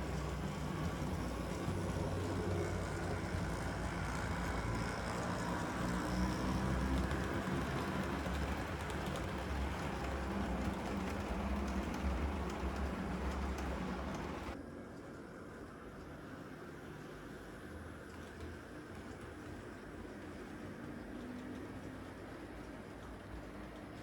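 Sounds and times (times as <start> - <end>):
model train motor hum: 0.0 - 14.6
wheels rolling on track: 0.0 - 14.6, 15.5 - 24.0.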